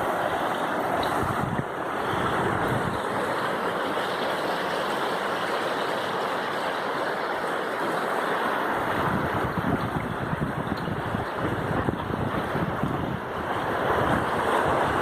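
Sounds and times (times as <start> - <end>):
waterfall roaring: 0.0 - 15.0
wind buffeting microphone: 0.8 - 3.4, 8.8 - 15.0.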